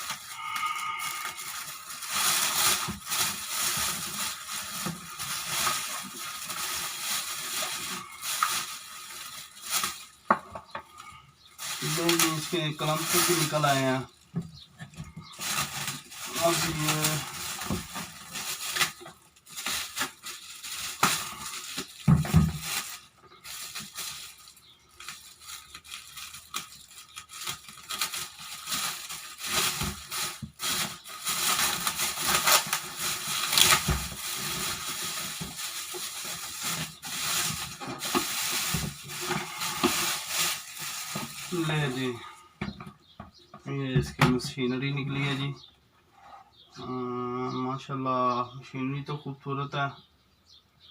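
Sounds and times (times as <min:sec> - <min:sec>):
rubbing sounds: 0:00.0 - 0:42.2
packing material crinkling: 0:00.0 - 0:42.4.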